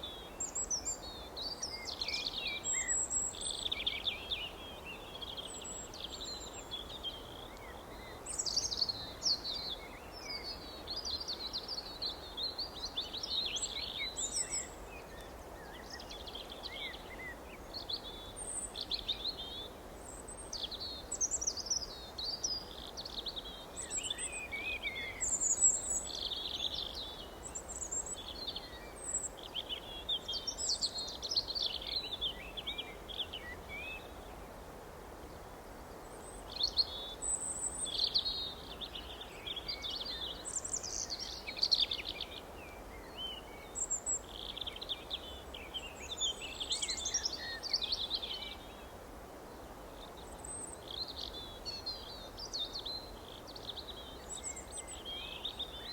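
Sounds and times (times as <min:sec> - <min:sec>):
songbirds chirping: 0:00.0 - 0:55.9.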